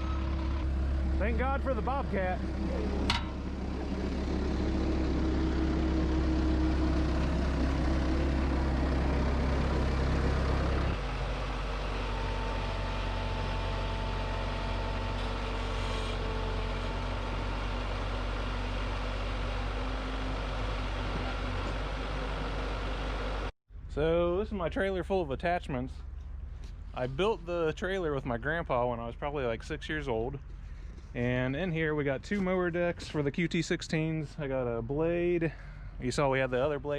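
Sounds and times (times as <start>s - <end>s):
skid steer engine running: 0.0s - 23.5s.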